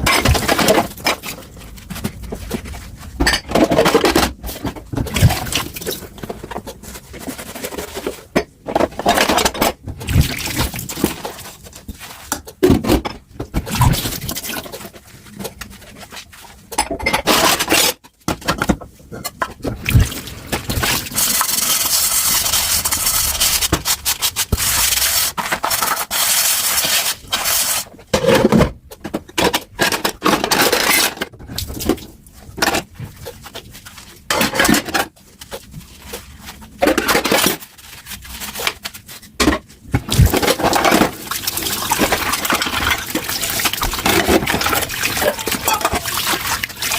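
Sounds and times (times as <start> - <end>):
crockery clinking and scraping: 40.4 - 46.8.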